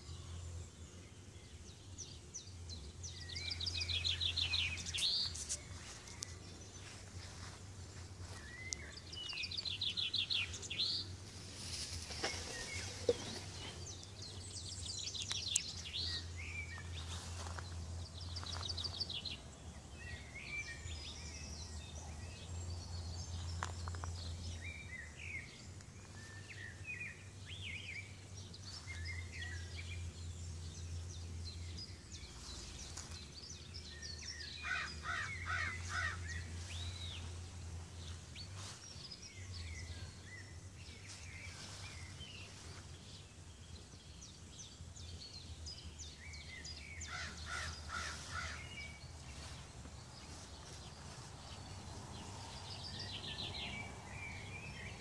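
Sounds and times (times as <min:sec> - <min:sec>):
wild birds chirping and calling: 0:01.2 - 0:55.0.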